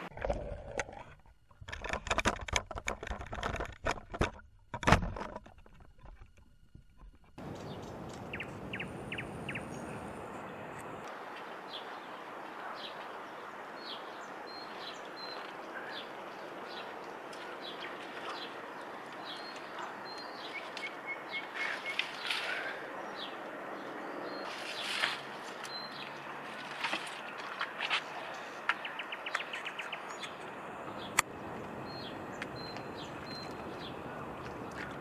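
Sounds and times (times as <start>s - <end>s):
small birds chirping: 7.0s - 35.0s
steady background hiss: 7.4s - 22.5s
rustling or splashing: 21.5s - 22.8s, 24.4s - 28.3s.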